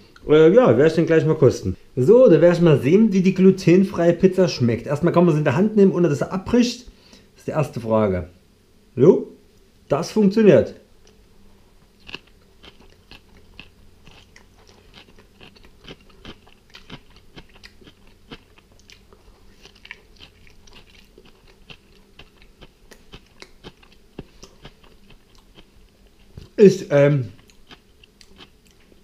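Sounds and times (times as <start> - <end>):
person chewing crunchy food: 11.8 - 26.6, 27.3 - 29.0.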